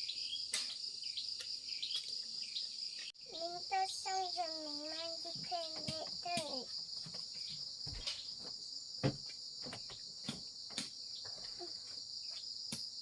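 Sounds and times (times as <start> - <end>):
crickets chirping: 0.0 - 13.0
light knocks and taps: 5.3 - 11.6.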